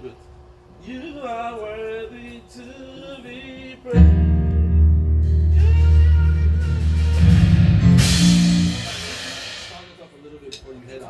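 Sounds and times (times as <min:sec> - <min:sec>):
band playing low chord: 0:04.0 - 0:10.1.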